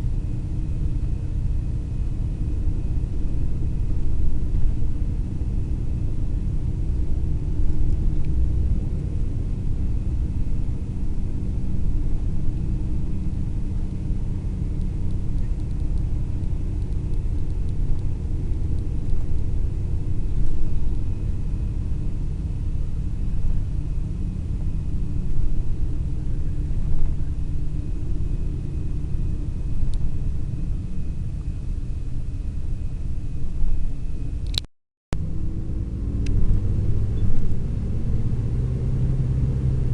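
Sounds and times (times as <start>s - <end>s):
faint thin whine: 0.0s - 34.6s
engine and road rumble: 0.0s - 39.9s.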